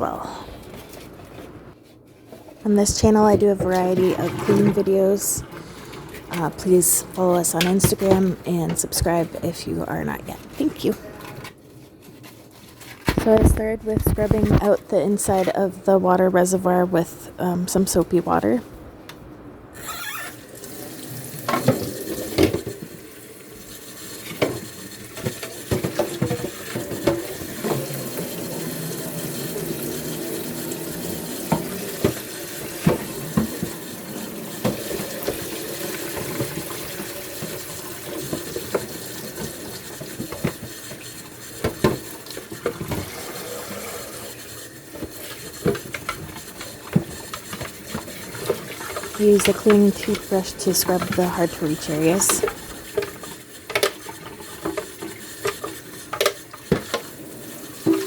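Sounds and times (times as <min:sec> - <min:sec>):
water running and splashing: 0:20.5 - 0:58.0.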